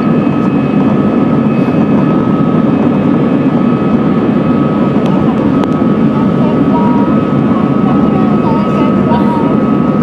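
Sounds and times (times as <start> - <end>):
airplane engine drone: 0.0 - 10.0
thin steady whine: 0.0 - 10.0.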